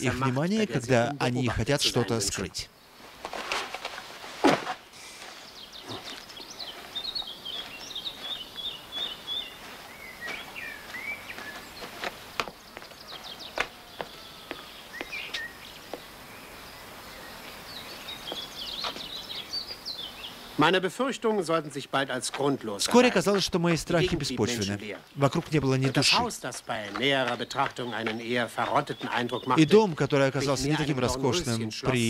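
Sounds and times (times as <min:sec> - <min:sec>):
steady outdoor hiss: 0:00.0 - 0:32.0
small birds chirping: 0:04.9 - 0:32.0
sharp taps: 0:12.0 - 0:12.9.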